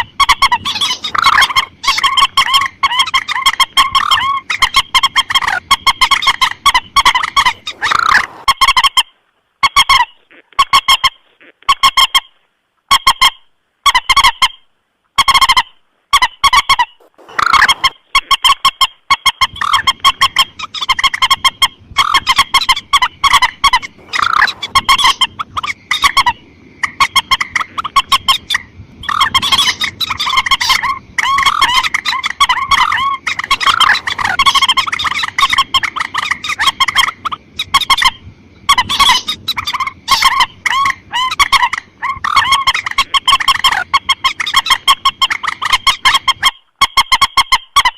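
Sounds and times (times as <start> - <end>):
rail bird harsh honking calls: 0.0 - 9.1, 16.6 - 18.0, 19.4 - 46.4.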